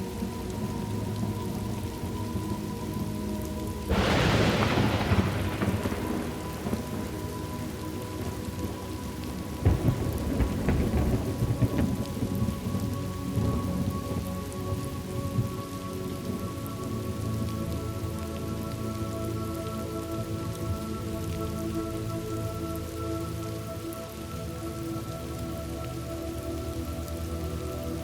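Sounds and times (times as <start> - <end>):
steady rain: 0.0 - 28.0
thunder: 3.9 - 8.8, 9.6 - 14.2.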